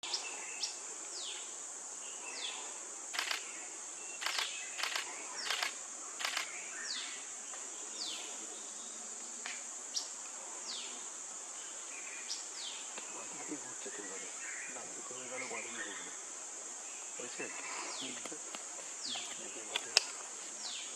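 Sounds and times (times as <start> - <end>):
insects droning: 0.0 - 20.9
sharp clicks: 3.2 - 3.4, 4.2 - 6.5.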